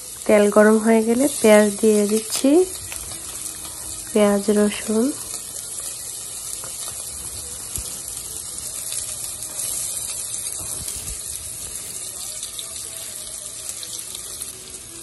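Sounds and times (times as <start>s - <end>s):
onion sizzling in oil: 0.0s - 15.0s.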